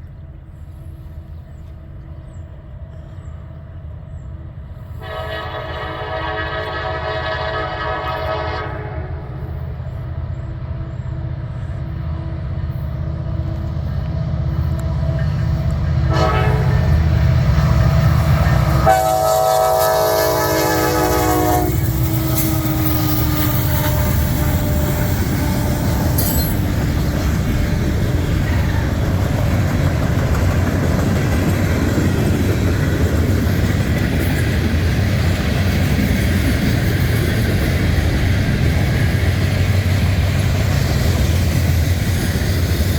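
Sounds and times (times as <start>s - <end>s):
low rumble of locomotive: 0.0s - 42.9s
rolling rush of train cars: 0.0s - 42.9s
train horn blasts: 4.9s - 9.7s, 14.6s - 26.9s, 28.0s - 29.4s.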